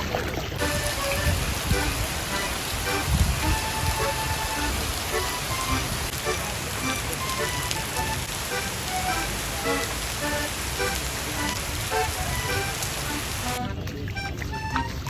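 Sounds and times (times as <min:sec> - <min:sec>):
heavy rain pouring: 0:00.0 - 0:15.0
light background music: 0:11.9 - 0:15.0.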